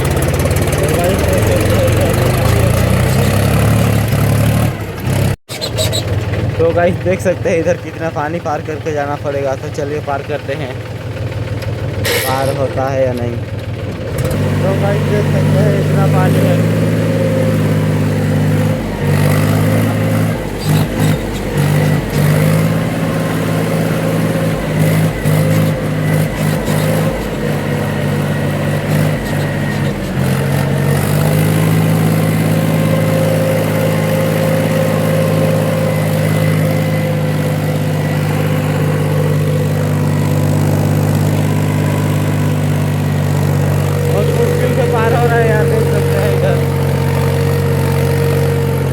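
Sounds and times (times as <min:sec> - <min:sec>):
tractor diesel engine running: 0:00.0 - 0:48.9
knocks and jolts: 0:18.1 - 0:35.1.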